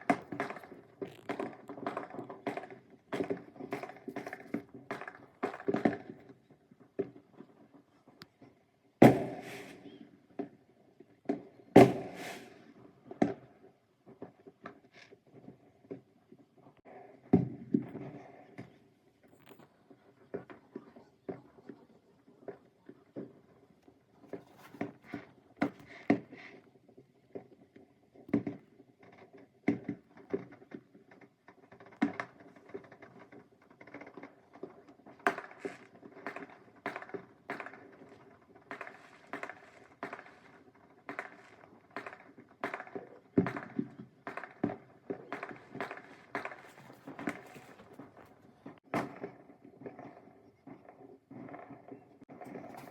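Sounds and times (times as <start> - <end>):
fireworks popping and banging: 0.0 - 52.9.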